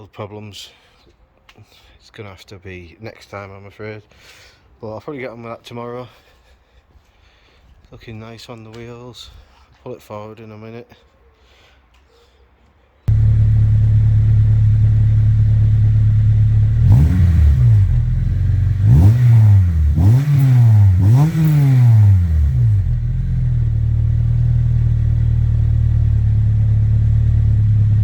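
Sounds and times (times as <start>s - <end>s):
car engine idling and revving: 13.1s - 28.0s.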